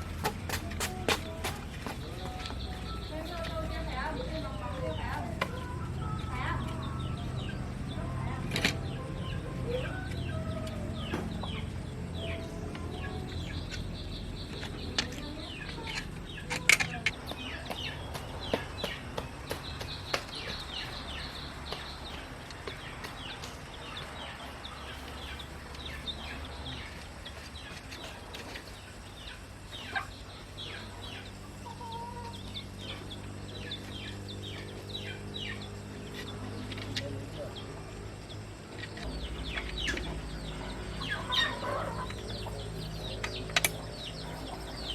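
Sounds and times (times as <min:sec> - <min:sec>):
chickens chirping: 0:00.0 - 0:44.9
sharp taps: 0:16.8 - 0:23.6.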